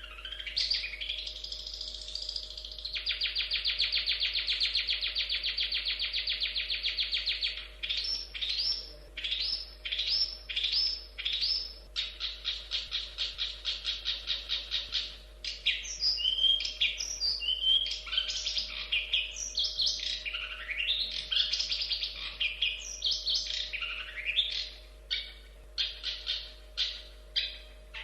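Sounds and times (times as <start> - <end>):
bird singing buzzy trill: 0.0 - 28.0.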